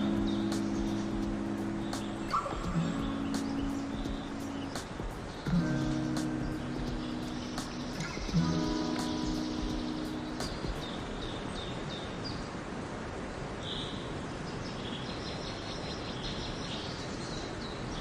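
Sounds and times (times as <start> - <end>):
steady background rush: 0.0 - 11.6
songbirds chirping: 0.0 - 12.8, 13.5 - 18.0.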